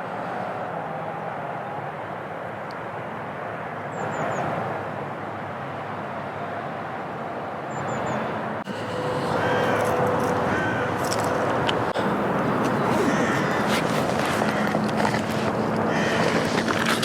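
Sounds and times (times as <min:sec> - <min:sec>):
distant engine rumble: 0:07.8 - 0:17.0.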